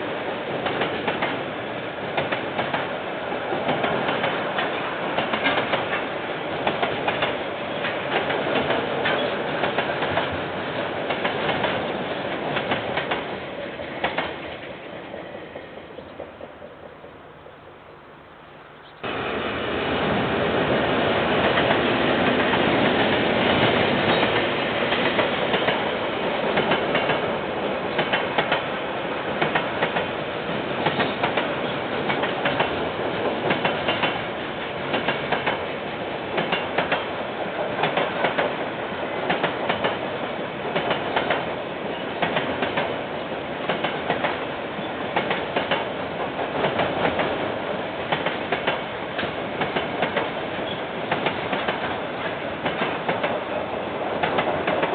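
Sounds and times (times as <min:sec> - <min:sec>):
freight train rumbling past: 0:00.0 - 0:54.9
wheels clicking over rail joints: 0:03.7 - 0:10.4, 0:21.4 - 0:28.7, 0:29.4 - 0:30.1, 0:30.8 - 0:35.7, 0:36.3 - 0:37.1, 0:37.8 - 0:38.6, 0:39.2 - 0:40.1, 0:40.7 - 0:43.0, 0:43.6 - 0:47.4, 0:48.1 - 0:53.6, 0:54.2 - 0:54.9.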